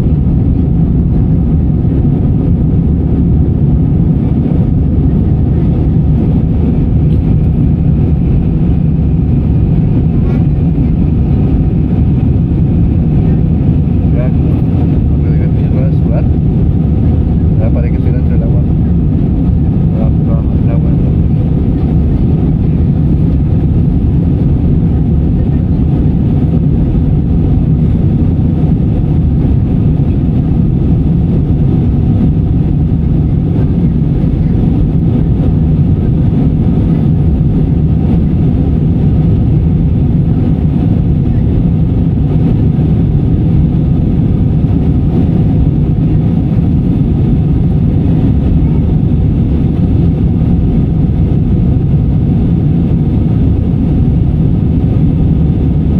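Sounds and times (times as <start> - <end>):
airliner cabin rumble: 0.0 - 55.9.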